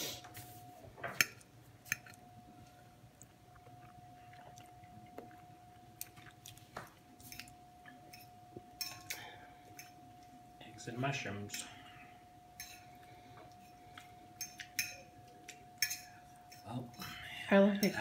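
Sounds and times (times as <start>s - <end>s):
person chewing food: 1.2s - 10.5s, 12.0s - 17.1s
fork clinking on plate: 14.4s - 16.7s.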